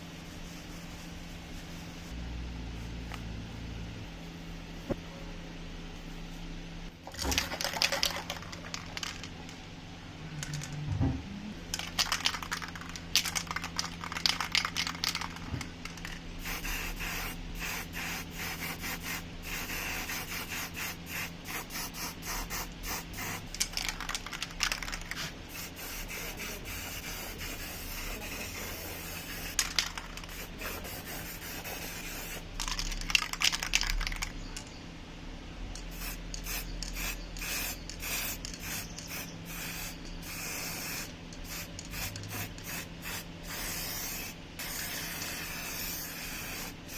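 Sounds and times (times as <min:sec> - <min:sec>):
low steady hum: 0:00.0 - 0:46.9.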